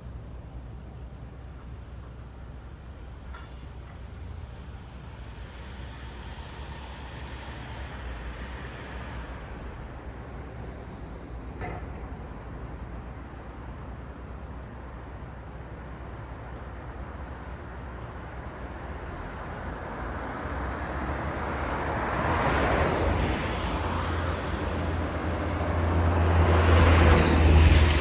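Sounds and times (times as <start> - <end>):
road traffic rumble: 4.0 - 28.0
vehicle passing: 20.6 - 28.0.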